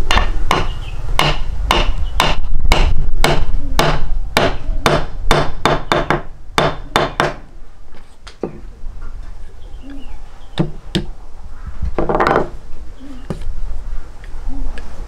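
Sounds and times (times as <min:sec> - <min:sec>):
sharp hammer-like knocks: 0:00.1 - 0:07.4.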